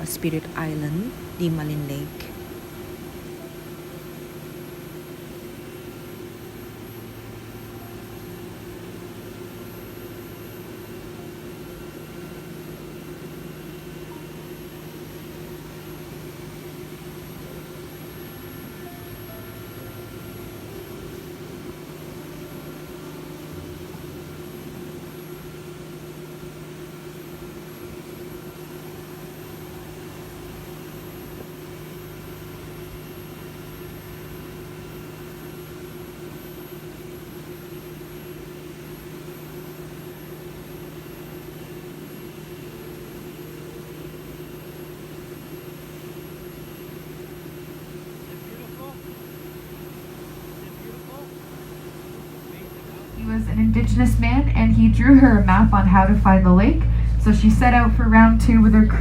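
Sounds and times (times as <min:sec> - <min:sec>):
boat engine droning: 0:00.0 - 0:05.1, 0:15.6 - 0:32.8, 0:50.7 - 0:59.0.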